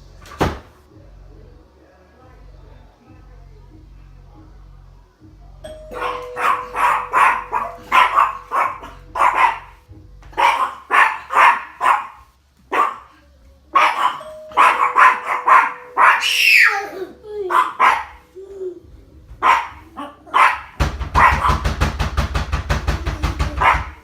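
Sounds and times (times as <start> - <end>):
dog barking: 5.7 - 9.8, 10.4 - 18.3, 19.4 - 21.8, 23.5 - 24.0
dog crying: 5.9 - 9.8, 13.8 - 21.5.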